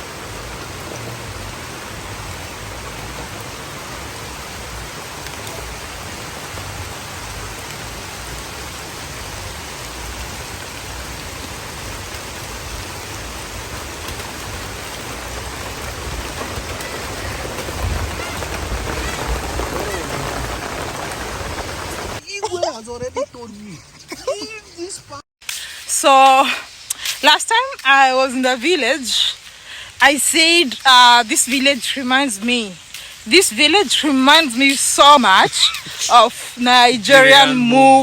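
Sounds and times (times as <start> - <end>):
rain falling: 0.0 - 24.7, 25.4 - 38.0.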